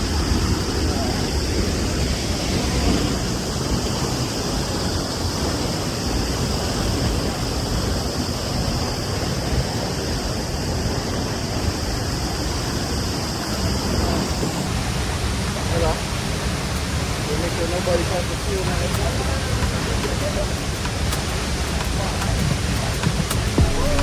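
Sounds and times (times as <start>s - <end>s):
waterfall rushing: 13.4s - 24.0s.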